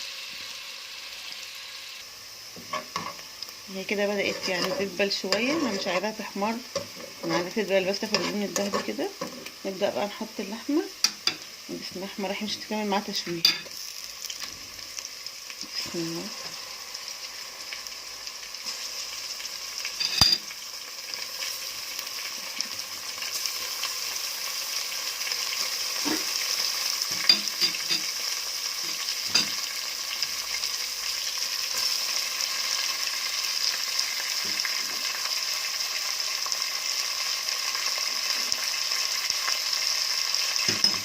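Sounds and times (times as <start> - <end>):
meat sizzling in a pot: 0.0 - 41.0
spoon clinking against pot: 27.2 - 28.1.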